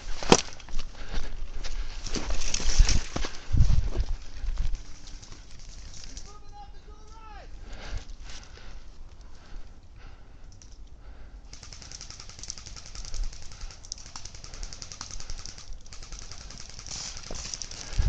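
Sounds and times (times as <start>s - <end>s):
airsoft gun firing full auto: 11.5s - 17.9s.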